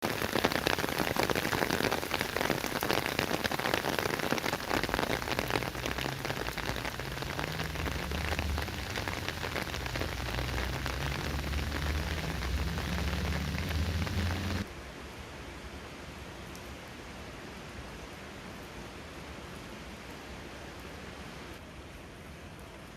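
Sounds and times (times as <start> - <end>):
heavy rain pouring: 0.0 - 14.8
low rumble: 5.0 - 14.7.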